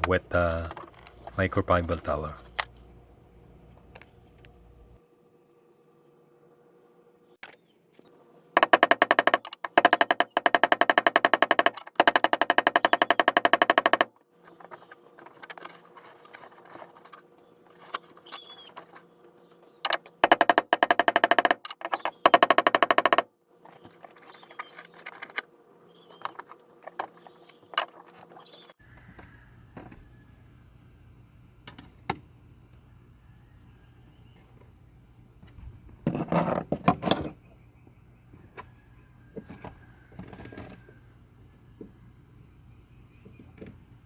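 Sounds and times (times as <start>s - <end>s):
tool clicking on fasteners: 8.6s - 19.0s, 19.8s - 25.5s.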